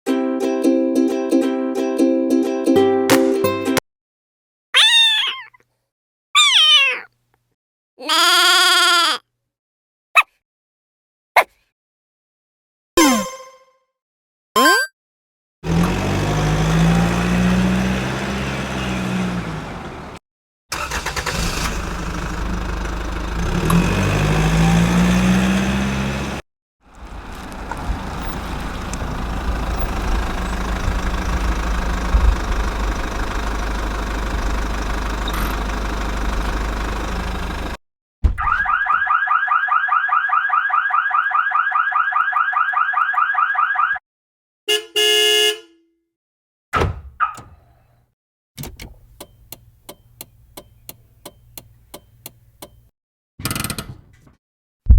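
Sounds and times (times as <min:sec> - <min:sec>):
engine revving: 0:15.6 - 0:37.8.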